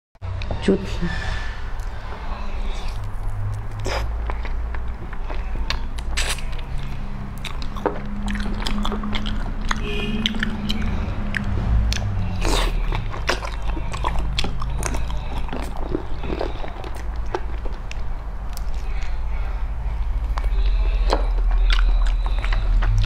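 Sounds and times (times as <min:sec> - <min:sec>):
low steady hum: 0:00.2 - 0:23.0
person chewing sticky pork: 0:01.8 - 0:23.0.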